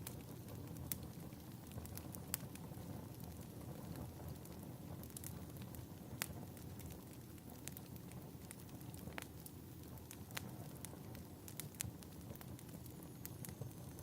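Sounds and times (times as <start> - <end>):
rumble of fire flames: 0.0 - 14.0
wood fire popping: 0.0 - 14.0.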